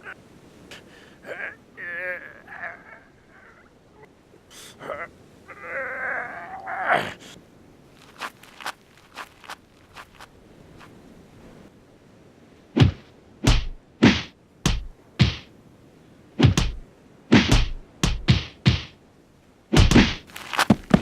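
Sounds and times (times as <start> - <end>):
punch thuds: 12.8 - 15.5, 16.4 - 18.9, 19.7 - 21.0.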